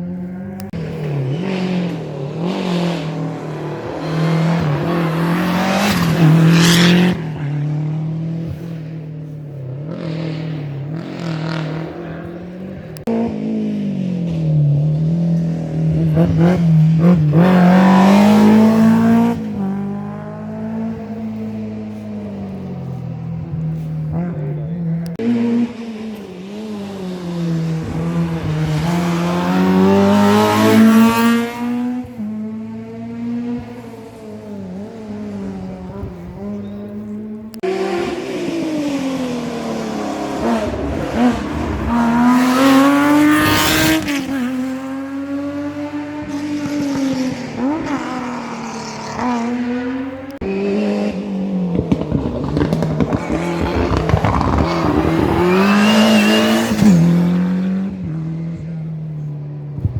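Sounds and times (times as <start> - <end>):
rally car engines revving: 0.0 - 59.9
tyre squeal: 53.2 - 57.2.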